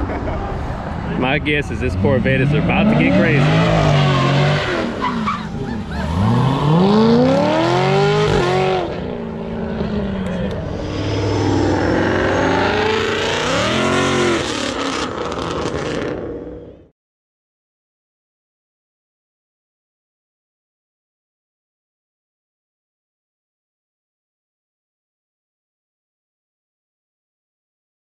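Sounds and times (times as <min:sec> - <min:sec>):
car engine revving: 0:01.0 - 0:16.8.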